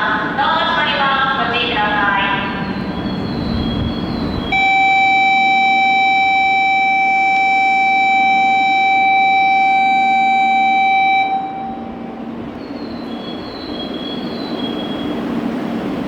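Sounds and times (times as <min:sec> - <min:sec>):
low rumble of a train: 0:00.0 - 0:16.0
electronic warning tone: 0:02.5 - 0:12.2.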